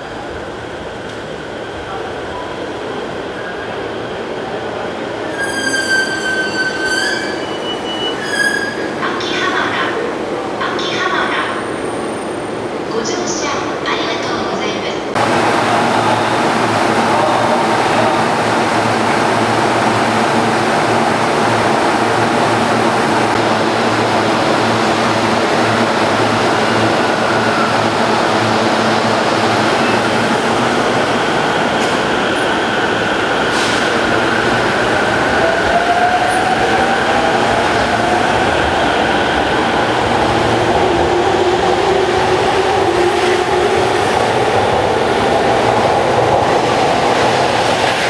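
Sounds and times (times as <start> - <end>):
train wheels rumbling: 4.4 - 48.0.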